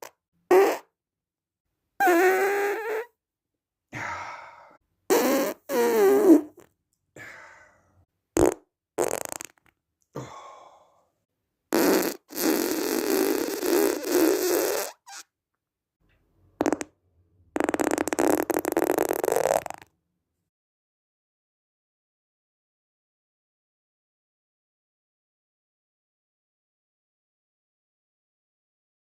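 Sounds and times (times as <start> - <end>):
farts: 0.0 - 0.9, 2.0 - 3.2, 5.1 - 6.7, 8.4 - 9.7, 11.7 - 15.2, 16.6 - 17.0, 17.6 - 19.9.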